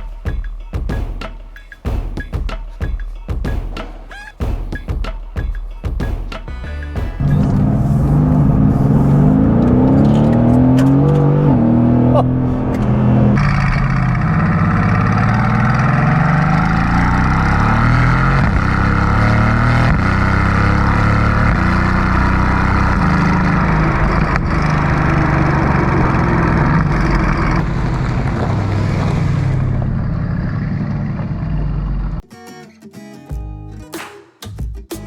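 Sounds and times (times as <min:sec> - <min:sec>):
car engine revving: 0:07.0 - 0:32.2.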